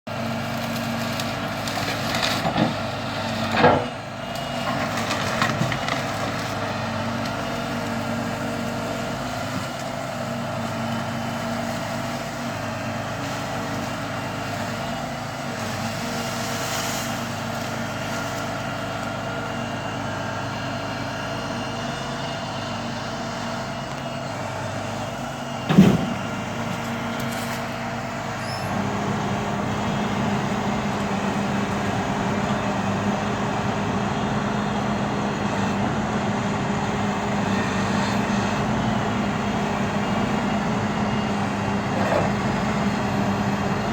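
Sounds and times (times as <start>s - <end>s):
truck engine running: 0.1s - 43.9s
debris thumps: 25.7s - 26.3s.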